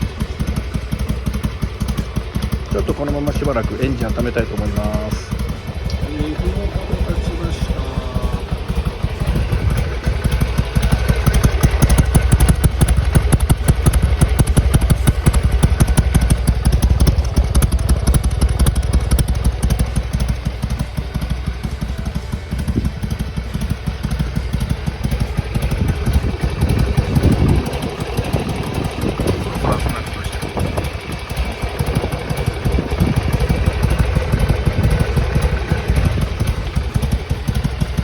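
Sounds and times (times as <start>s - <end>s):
motorcycle engine idling: 0.0s - 38.0s.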